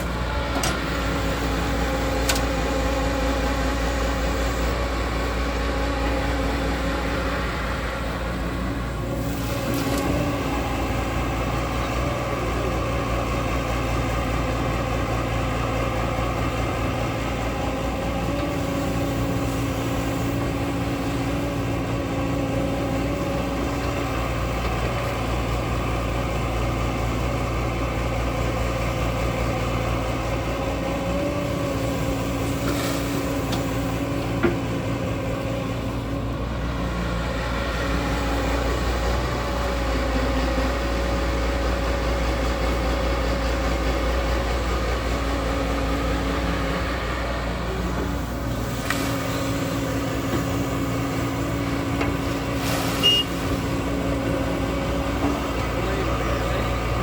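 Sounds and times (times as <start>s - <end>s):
excavator diesel engine running: 0.0s - 57.0s
hydraulic whine: 47.7s - 57.0s.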